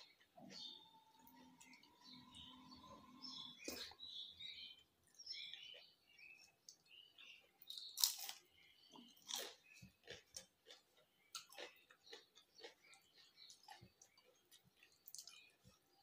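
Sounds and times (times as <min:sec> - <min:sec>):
person biting crunchy fried food: 0:08.0 - 0:08.4.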